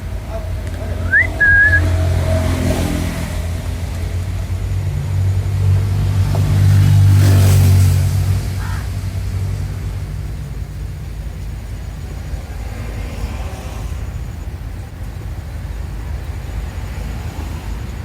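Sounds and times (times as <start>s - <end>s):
vehicle engine rumble passing: 0.0s - 18.0s
whistle sliding upward: 1.0s - 2.1s.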